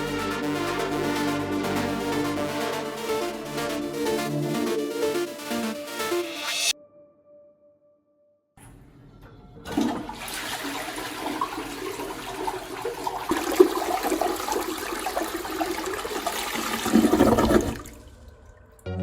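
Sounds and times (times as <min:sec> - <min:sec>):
toilet flushing: 0:09.6 - 0:18.4.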